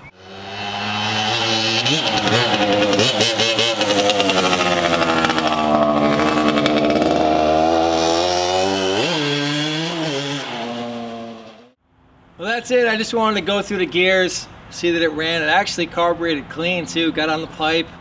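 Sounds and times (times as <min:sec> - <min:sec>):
two-stroke motorcycle engine revving: 0:00.0 - 0:11.8.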